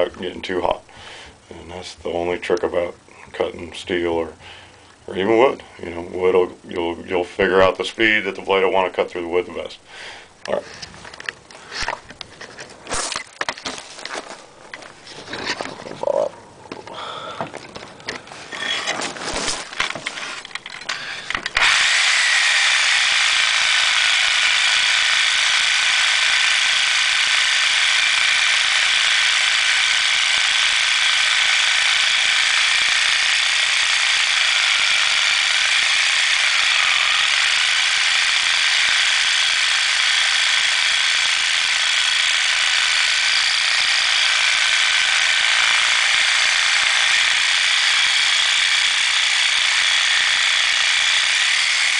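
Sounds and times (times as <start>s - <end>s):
reciprocating saw cutting metal pipe: 18.5s - 51.9s.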